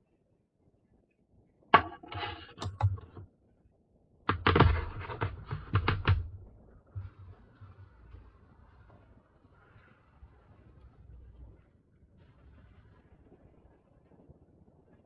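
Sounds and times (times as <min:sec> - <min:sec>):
hardware clicks and knocks: 0:01.8 - 0:03.2, 0:04.3 - 0:07.2.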